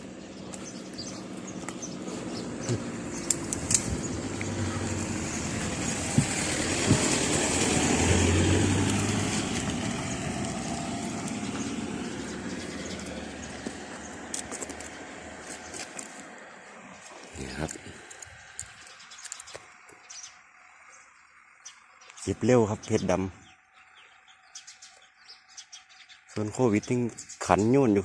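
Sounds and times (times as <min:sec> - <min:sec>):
vehicle passing by: 0:00.0 - 0:19.1
sharp clicks: 0:02.6 - 0:04.6, 0:17.6 - 0:20.0.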